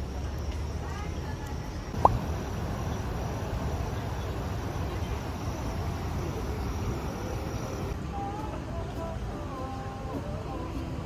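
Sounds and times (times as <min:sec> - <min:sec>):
low rumbling background noise: 0:00.0 - 0:11.0
insects trilling: 0:00.2 - 0:08.0.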